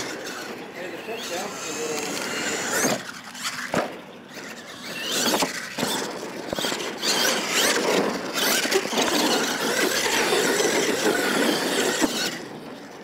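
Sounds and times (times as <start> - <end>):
toy truck motor whining: 0.0 - 13.0
tyres scrabbling on loose dirt: 0.0 - 13.0.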